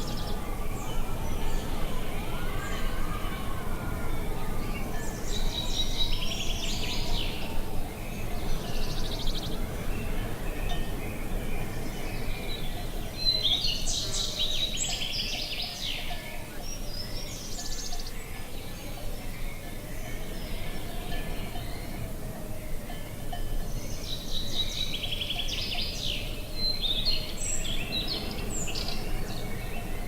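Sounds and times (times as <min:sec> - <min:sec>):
low background noise: 0:00.0 - 0:30.0
songbird chirping and trilling: 0:00.0 - 0:30.0.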